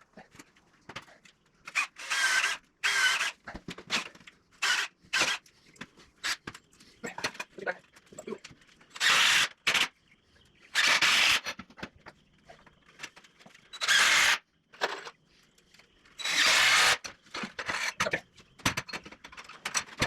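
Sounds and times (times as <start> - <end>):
power drill running in bursts: 1.8 - 3.4, 9.0 - 9.9, 10.8 - 11.5, 13.8 - 14.4, 16.2 - 17.0
handling knocks and ticks: 17.1 - 20.0.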